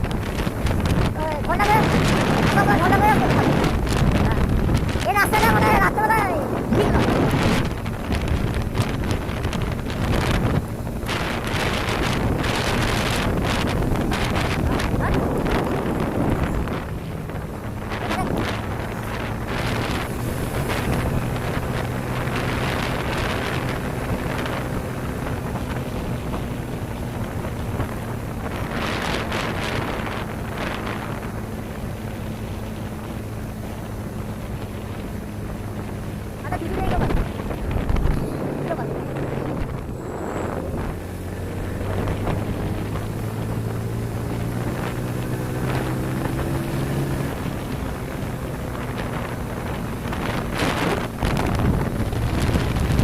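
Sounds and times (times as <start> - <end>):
motorcycle engine hum: 0.0 - 53.0
wind buffeting microphone: 0.0 - 53.0.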